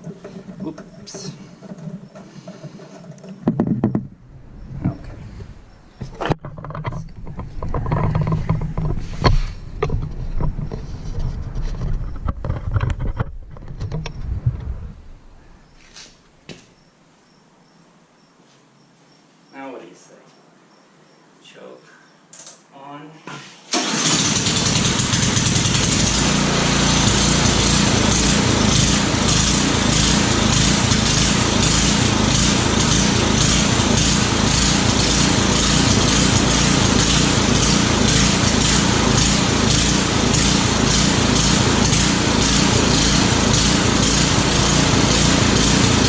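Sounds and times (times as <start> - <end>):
snowblower engine running: 0.0 - 3.3, 23.7 - 46.0.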